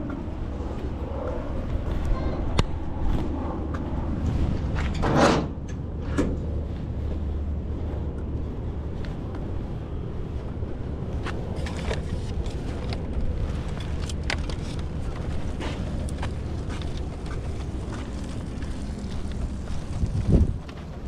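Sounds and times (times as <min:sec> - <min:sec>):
low engine rumble: 0:00.0 - 0:21.0
clicks knocks and rattles: 0:11.5 - 0:18.3.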